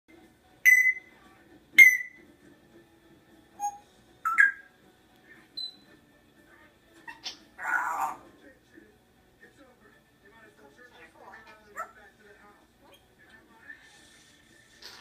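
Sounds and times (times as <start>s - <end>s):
parrot whistling: 0.7s - 1.1s, 1.8s - 2.2s, 3.6s - 4.7s
parrot raspy call: 3.6s - 4.7s, 7.1s - 8.2s.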